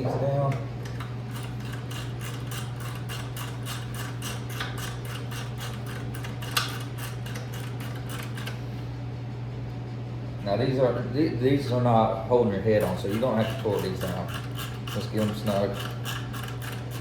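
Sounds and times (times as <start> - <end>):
hand ratchet clicking: 0.9 - 8.6, 12.8 - 17.0.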